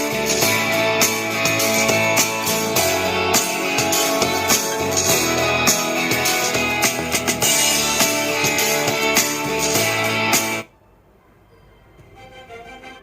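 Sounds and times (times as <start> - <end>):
instrumental music with guitar and drums: 0.0 - 10.7.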